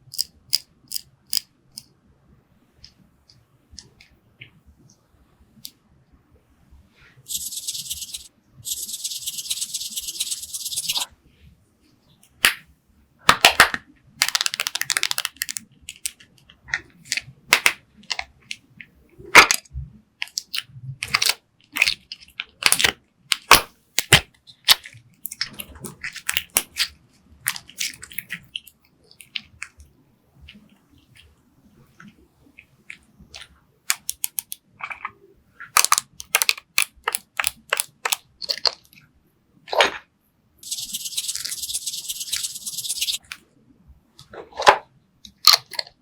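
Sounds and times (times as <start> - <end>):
steady high hiss: 6.9 - 11.2, 40.6 - 43.2.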